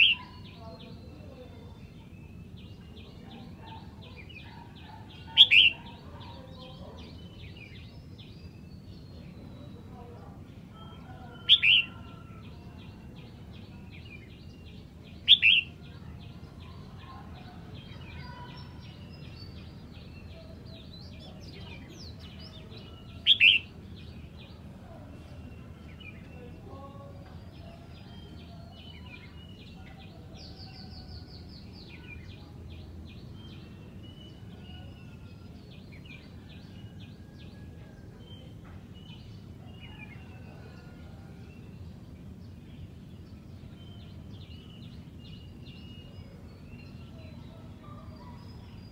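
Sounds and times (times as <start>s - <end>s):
bird singing high phrases: 0.0s - 37.4s
faint rapid bird twittering: 0.0s - 48.9s.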